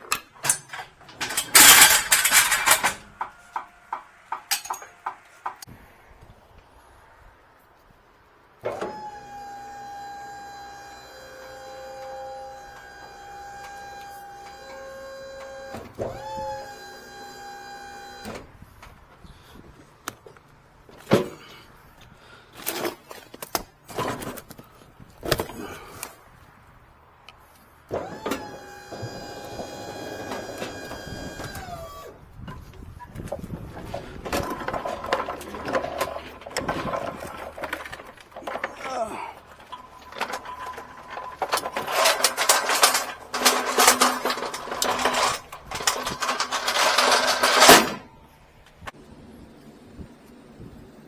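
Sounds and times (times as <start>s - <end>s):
hydraulic pump motor whining: 0.0s - 5.7s, 8.6s - 19.7s, 27.9s - 48.9s
metal clanks and knocks: 0.0s - 5.7s, 32.5s - 48.1s.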